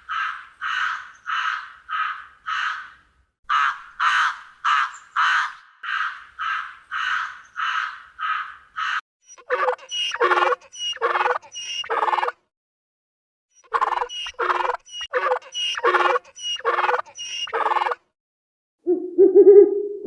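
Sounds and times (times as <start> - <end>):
animal harsh calls: 6.5 - 12.4, 13.6 - 18.1.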